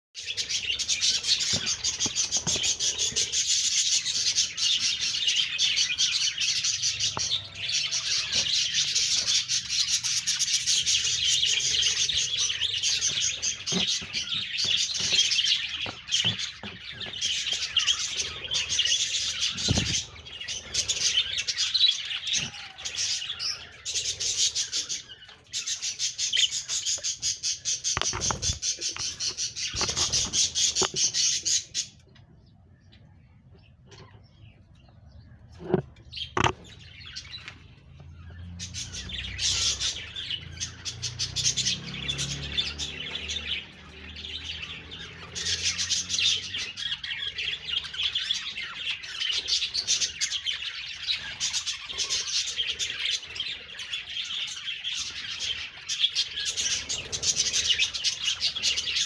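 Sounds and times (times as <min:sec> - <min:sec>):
budgerigars chattering: 0:00.2 - 0:32.0, 0:35.5 - 0:37.5, 0:38.2 - 0:59.0.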